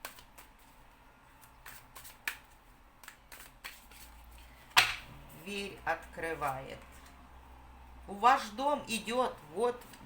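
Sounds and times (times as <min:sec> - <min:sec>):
cards clicking and slapping: 0:00.0 - 0:00.7, 0:01.5 - 0:04.1.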